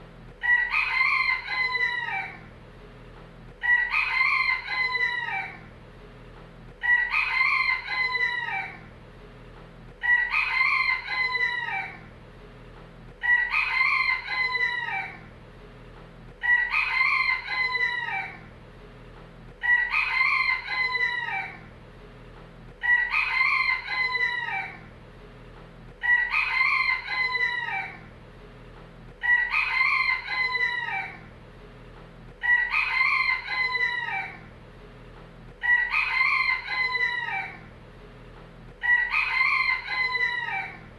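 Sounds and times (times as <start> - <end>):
faint low hum: 0.0 - 40.9
rooster crowing: 0.4 - 2.5, 3.6 - 5.7, 6.8 - 8.9, 10.0 - 12.1, 13.2 - 15.3, 16.4 - 18.5, 19.6 - 21.7, 22.8 - 24.9, 26.0 - 28.1, 29.2 - 31.3, 32.4 - 34.5, 35.6 - 37.7, 38.8 - 40.9.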